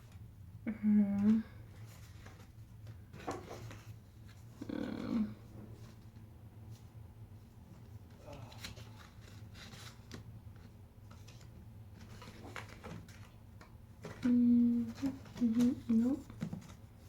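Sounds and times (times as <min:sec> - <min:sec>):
person humming mm: 0:00.7 - 0:01.5, 0:04.6 - 0:05.4, 0:14.2 - 0:16.2
rustles and light clicks: 0:05.6 - 0:17.0.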